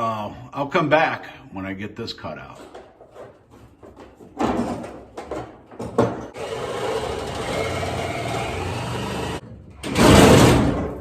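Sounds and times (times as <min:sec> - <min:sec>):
power tool running: 0:06.4 - 0:09.4.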